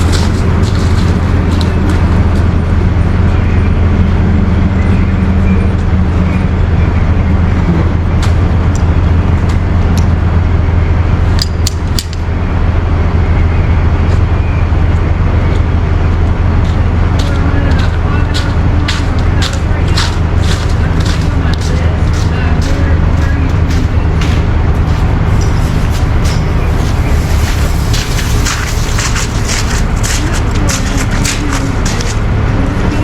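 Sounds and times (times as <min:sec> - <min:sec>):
truck engine droning: 0:00.0 - 0:33.0.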